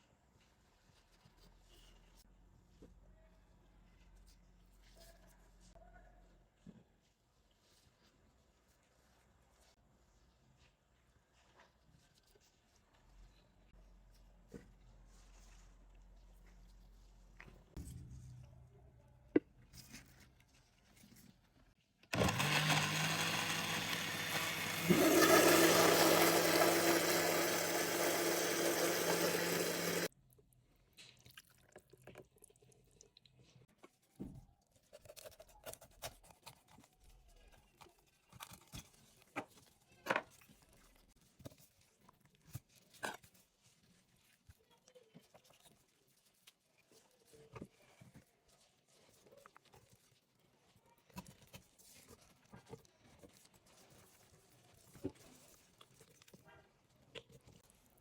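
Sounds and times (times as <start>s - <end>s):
water running from a tap: 24.7s - 30.1s.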